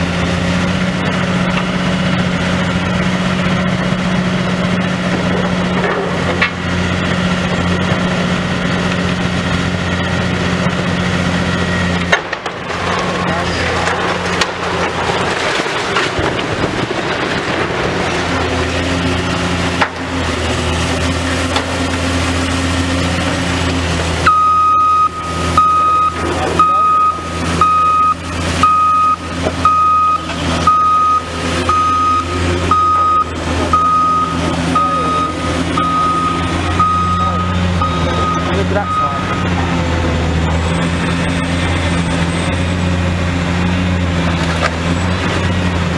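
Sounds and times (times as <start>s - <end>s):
heavy diesel engine running: 0.0s - 45.9s
reversing alarm beeping: 24.2s - 43.1s.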